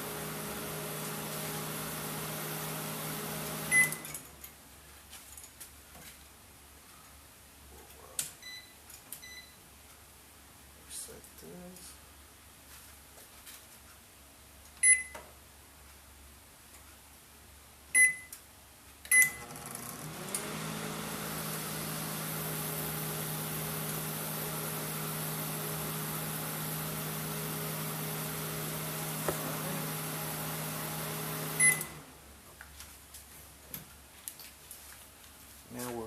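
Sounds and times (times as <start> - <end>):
microwave running with fan: 0.0 - 4.2, 19.2 - 32.3
microwave keypad beeps: 3.7 - 4.0, 14.8 - 15.2, 18.0 - 18.3, 19.1 - 19.4, 31.6 - 31.9
microwave end beep: 3.7 - 4.2, 14.8 - 15.2, 18.0 - 18.3, 19.1 - 19.5, 31.6 - 32.0.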